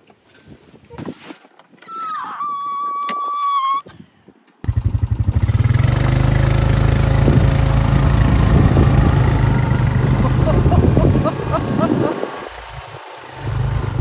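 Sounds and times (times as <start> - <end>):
vehicle engine running: 4.7 - 14.0.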